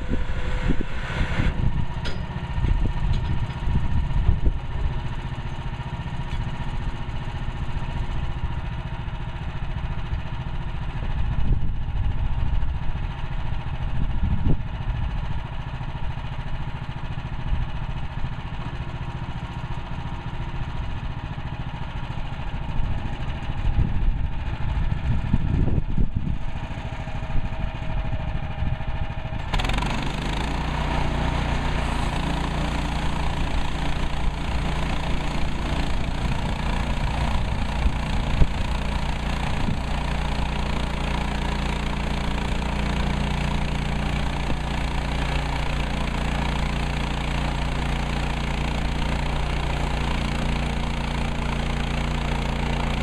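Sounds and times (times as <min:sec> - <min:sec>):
clatter: 0:00.0 - 0:07.5, 0:25.0 - 0:53.0
sawmill engine running: 0:00.0 - 0:53.0.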